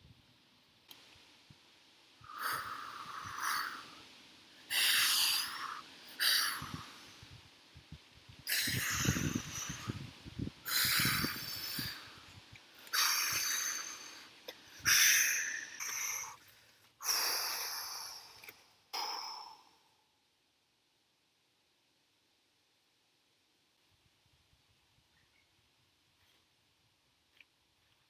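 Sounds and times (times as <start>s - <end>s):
person breathing heavily and snorting: 2.2s - 7.3s, 8.4s - 19.9s.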